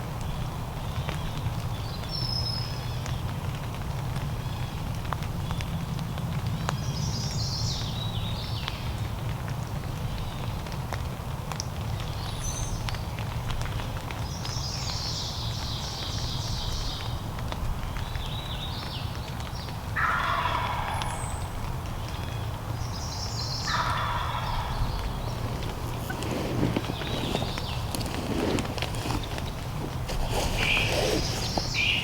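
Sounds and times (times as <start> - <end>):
songbirds singing: 17.8 - 32.0
turkey gobbling: 20.0 - 21.1, 23.7 - 26.7.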